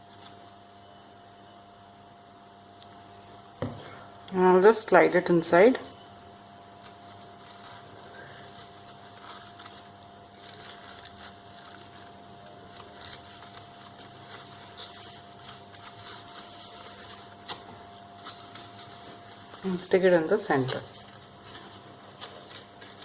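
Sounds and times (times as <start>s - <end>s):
steady low hum: 0.0s - 23.0s
paper rustling and clicking: 6.8s - 23.0s.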